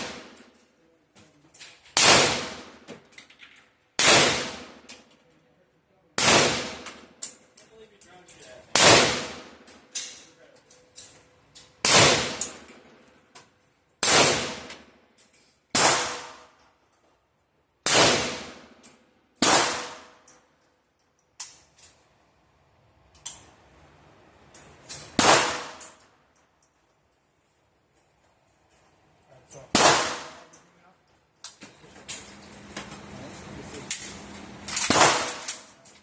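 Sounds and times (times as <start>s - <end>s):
gunshots: 2.0s - 2.8s, 4.0s - 4.8s, 6.2s - 7.0s, 8.7s - 9.6s, 11.8s - 12.6s, 14.0s - 14.8s, 15.7s - 16.4s, 17.8s - 18.7s, 19.4s - 20.1s, 25.1s - 25.9s, 29.7s - 30.5s, 34.7s - 35.7s.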